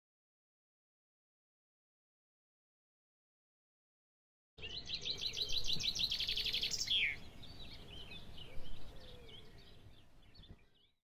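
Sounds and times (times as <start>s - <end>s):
light outdoor hiss: 4.6s - 11.0s
scattered bird calls: 4.6s - 11.0s.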